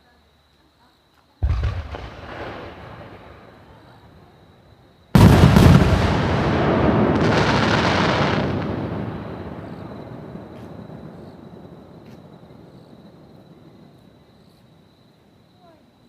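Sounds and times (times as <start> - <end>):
firework bang: 1.4 - 4.0, 5.1 - 12.4
firework crackle and hiss: 5.1 - 14.7.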